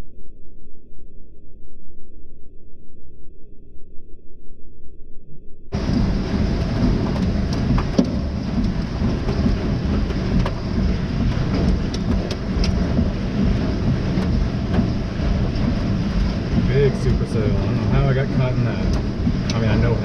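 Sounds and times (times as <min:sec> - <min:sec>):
heavy rain and hail on a car: 0:05.8 - 0:20.0.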